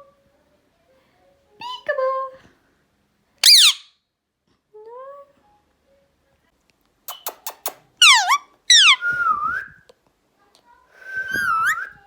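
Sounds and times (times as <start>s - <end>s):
parrot calling: 3.4s - 3.9s, 7.1s - 9.1s.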